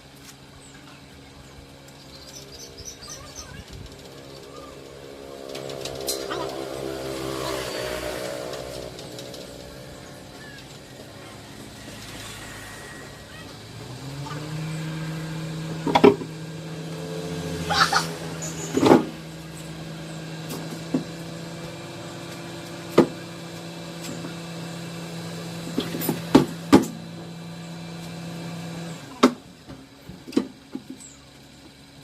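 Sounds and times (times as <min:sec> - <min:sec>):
machine hum: 0:00.7 - 0:23.4
metal clanks and knocks: 0:15.8 - 0:16.3.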